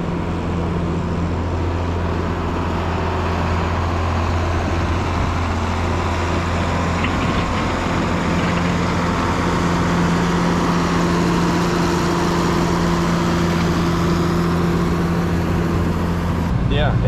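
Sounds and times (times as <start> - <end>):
snow-clearing machine engine humming: 0.0 - 17.0.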